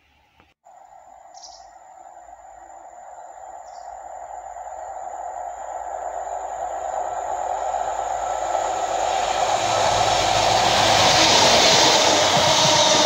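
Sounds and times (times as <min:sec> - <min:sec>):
wheel-on-rail noise: 0:01.9 - 0:13.0
diesel engine: 0:04.2 - 0:13.0.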